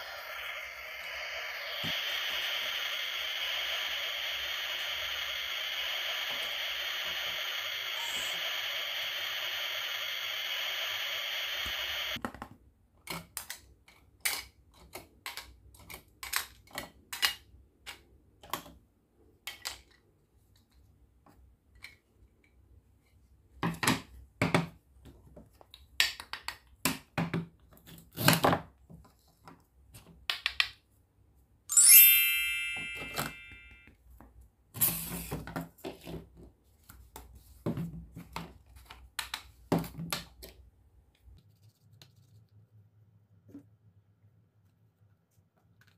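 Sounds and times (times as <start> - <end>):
toy steam hiss effect: 0.0 - 12.2, 31.7 - 33.9, 34.8 - 35.3
loud ringing clink: 31.7 - 33.9.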